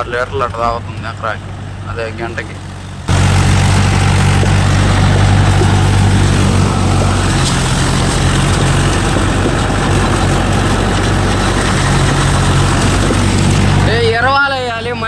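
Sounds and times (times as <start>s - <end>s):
tractor diesel engine under load: 0.0s - 15.0s
mechanical clatter: 2.8s - 14.3s.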